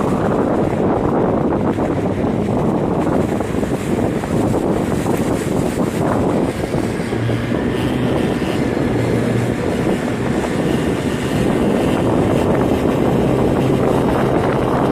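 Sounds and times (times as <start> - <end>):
outboard motor humming: 0.0 - 14.9
wind and water rushing: 0.0 - 14.9.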